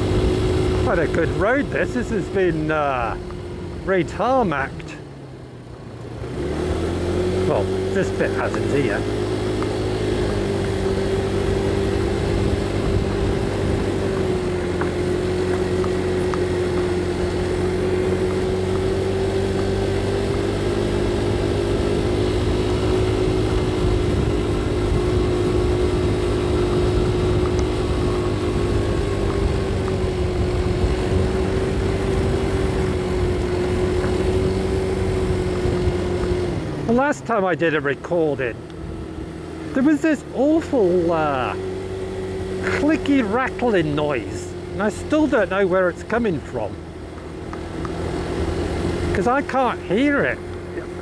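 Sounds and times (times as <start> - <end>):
motorcycle engine cruising: 0.0 - 51.0
road and wind noise: 0.0 - 51.0.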